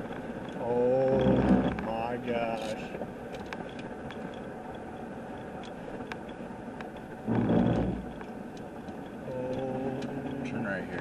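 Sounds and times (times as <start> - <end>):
light ticks: 2.5 - 7.1, 8.0 - 11.0.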